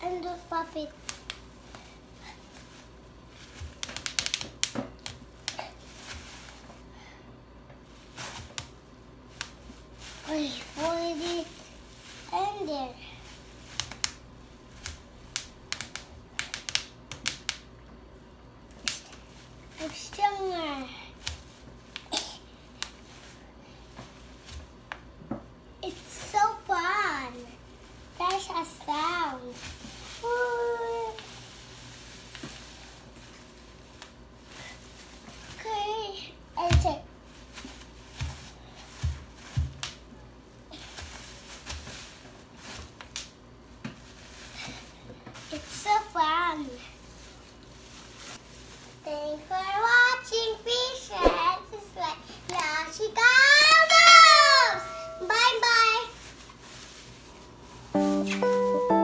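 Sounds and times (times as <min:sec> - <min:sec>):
bubble wrap popping: 0:03.4 - 0:06.6, 0:13.4 - 0:17.7
plastic crinkling: 0:55.3 - 0:58.7.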